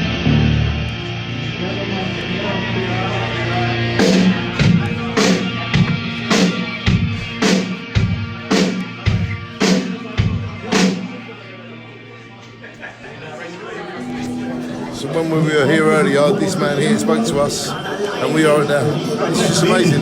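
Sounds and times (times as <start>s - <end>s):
rock band playing: 0.0s - 11.2s, 14.0s - 17.2s
drum kit beat: 4.0s - 11.1s.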